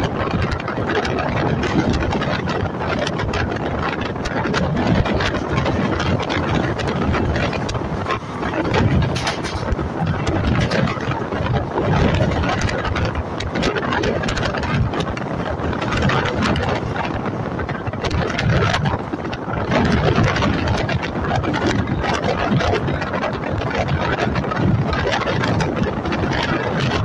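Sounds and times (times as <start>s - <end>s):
train rushing rumble: 0.0s - 27.0s
rattling clicks: 4.9s - 11.1s.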